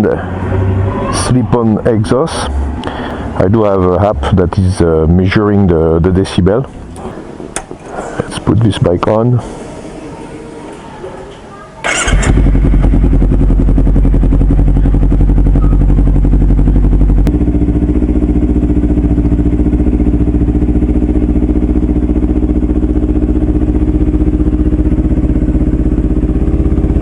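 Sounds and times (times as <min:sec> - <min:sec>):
motorcycle engine idling loudly: 0:11.8 - 0:27.0.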